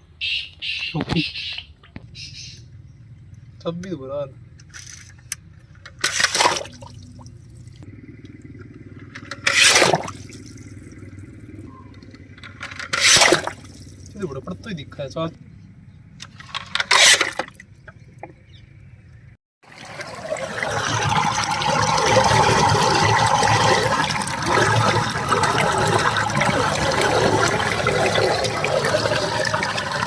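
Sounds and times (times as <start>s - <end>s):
water rushing and gurgling: 19.6s - 30.0s.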